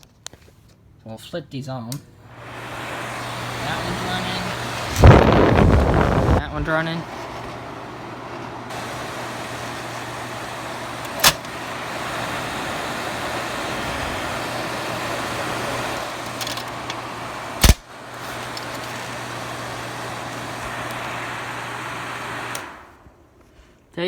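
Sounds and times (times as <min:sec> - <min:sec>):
exhaust fans whooshing: 0:02.3 - 0:23.9
sharp click: 0:17.6 - 0:17.8.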